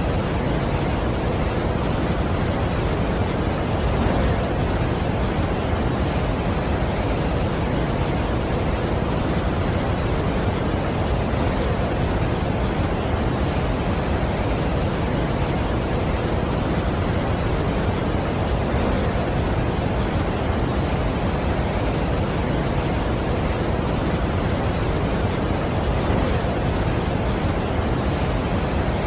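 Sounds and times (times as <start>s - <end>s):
large waterfall roaring: 0.0s - 29.0s.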